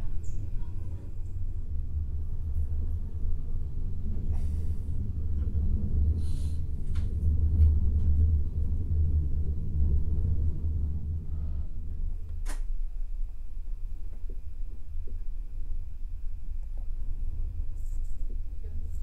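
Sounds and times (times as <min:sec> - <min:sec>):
train coach rumbling on rails: 0:00.0 - 0:19.0.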